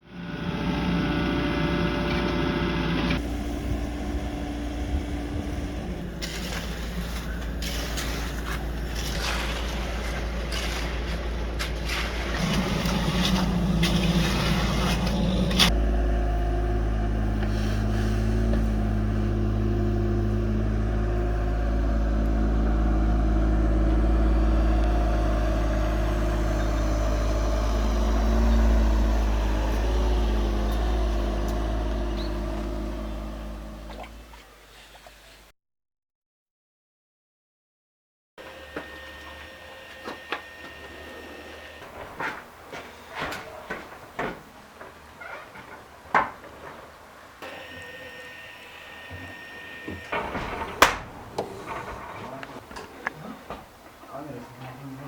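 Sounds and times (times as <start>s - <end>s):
heavy machinery engine running: 0.0s - 35.2s, 38.4s - 55.0s
metal clanks and scraping: 6.1s - 15.8s, 49.9s - 54.0s.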